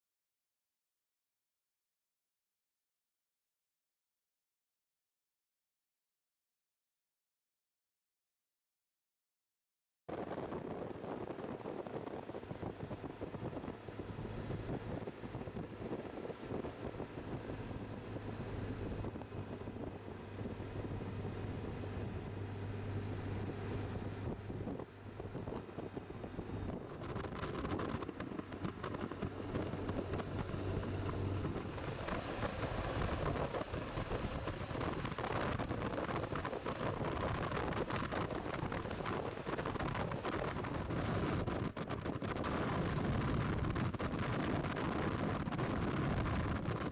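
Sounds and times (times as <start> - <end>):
wind rushing over microphone: 10.1 - 46.9
motorcycle engine running: 10.6 - 46.9.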